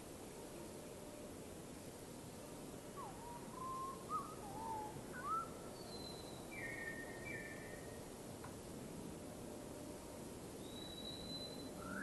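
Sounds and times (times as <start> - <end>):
steady background hiss: 0.0 - 12.0
bird whistling notes: 3.0 - 7.8, 10.6 - 12.0.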